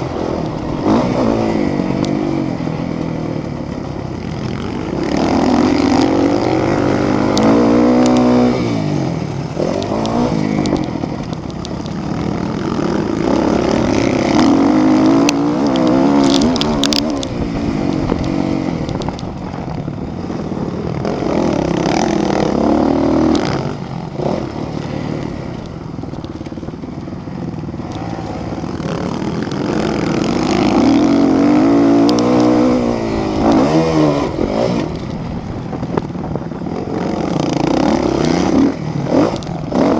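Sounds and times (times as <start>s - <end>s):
motorbike engines revving: 0.0s - 39.9s.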